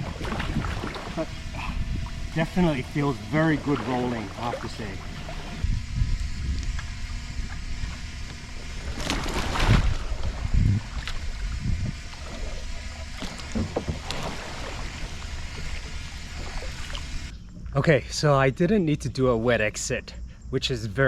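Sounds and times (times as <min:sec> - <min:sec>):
low water rumble on microphone: 0:00.0 - 0:17.3
water splashing around kayak: 0:00.0 - 0:17.3.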